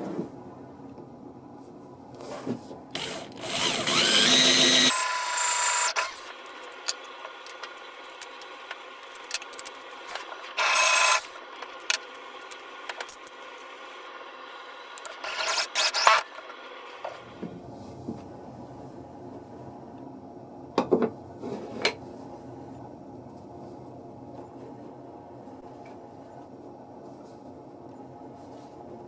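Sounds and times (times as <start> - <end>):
power tool motor whining: 3.0 - 6.6, 10.5 - 11.4, 15.0 - 17.3.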